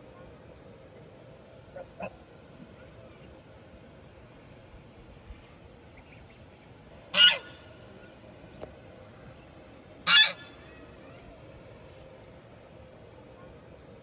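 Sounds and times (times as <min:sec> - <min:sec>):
animal calling loudly: 0:10.1 - 0:10.6.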